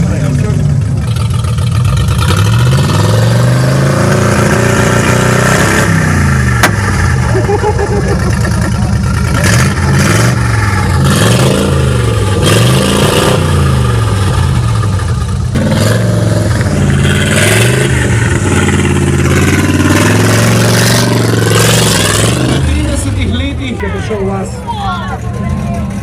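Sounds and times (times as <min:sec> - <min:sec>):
engine revving loudly: 0:02.1 - 0:07.0, 0:09.2 - 0:14.8, 0:15.5 - 0:23.1.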